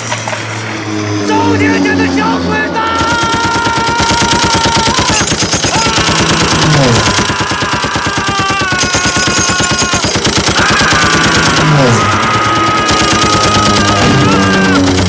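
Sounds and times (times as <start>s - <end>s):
falling whine: 0.0s - 4.7s, 10.6s - 15.0s
rapid machine-gun fire: 3.0s - 15.0s.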